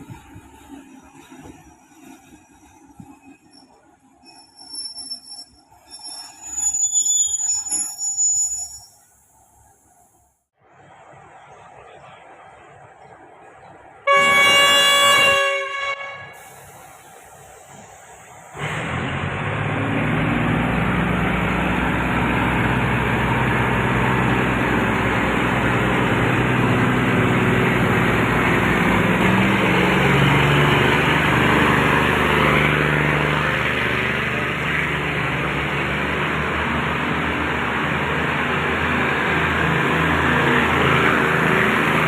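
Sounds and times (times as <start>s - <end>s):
moving train rumble: 0.0s - 42.0s
diesel engines running: 10.8s - 42.0s.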